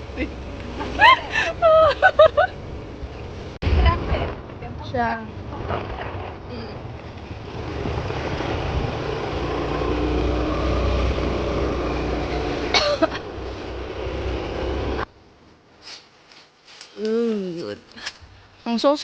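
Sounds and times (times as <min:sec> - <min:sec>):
moving vehicle rumble: 0:00.0 - 0:15.1.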